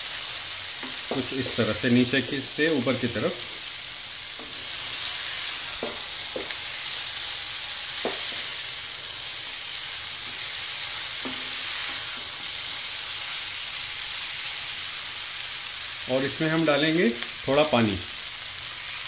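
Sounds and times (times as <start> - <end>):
cabbage sizzling in oil: 0.0 - 19.0
spatula scraping and knocking pan: 0.8 - 1.8, 4.3 - 6.8, 8.0 - 8.6, 10.2 - 12.5.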